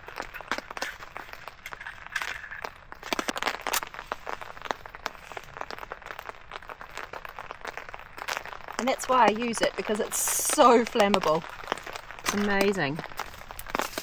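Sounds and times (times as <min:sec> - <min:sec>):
campfire kindling crackling: 0:00.0 - 0:14.0.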